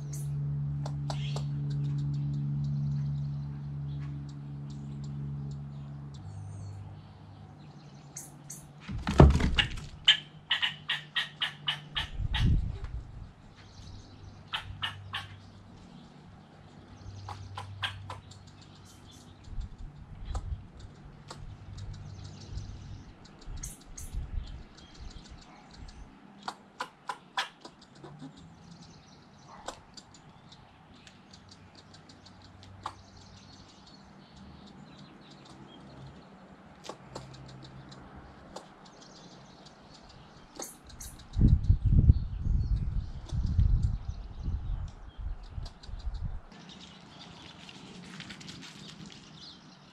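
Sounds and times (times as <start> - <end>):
birds chirping: 0.0 - 49.9
sharp clicks: 36.7 - 41.7.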